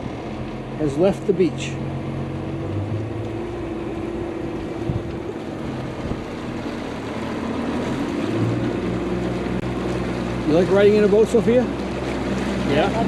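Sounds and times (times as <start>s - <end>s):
outboard engine running: 0.0s - 13.0s
water noise on hull: 0.0s - 13.0s
wind on microphone: 2.7s - 6.8s.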